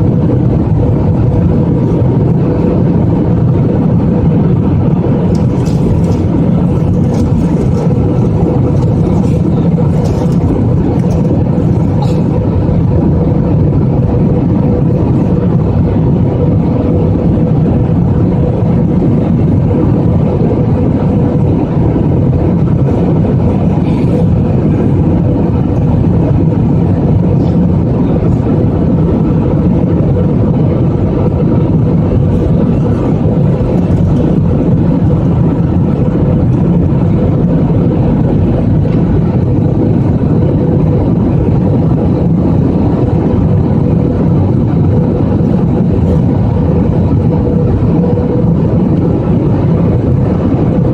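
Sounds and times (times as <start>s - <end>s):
jet engines rumbling: 0.0s - 50.9s
rushing air: 0.0s - 50.9s
steady cabin hum: 0.0s - 50.9s.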